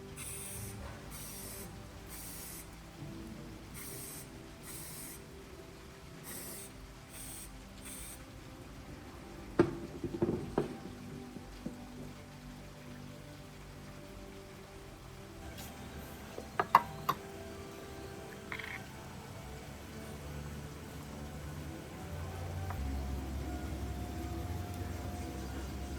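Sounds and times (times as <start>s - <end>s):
soft background music: 0.0s - 25.9s
spray bottle squirting: 0.2s - 2.8s, 3.7s - 5.2s, 6.2s - 8.2s.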